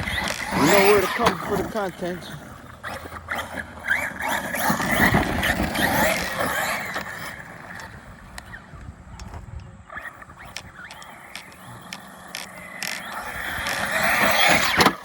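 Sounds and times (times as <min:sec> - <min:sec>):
tyres throwing dirt: 0:00.0 - 0:02.5
electric motor whining: 0:00.0 - 0:15.0.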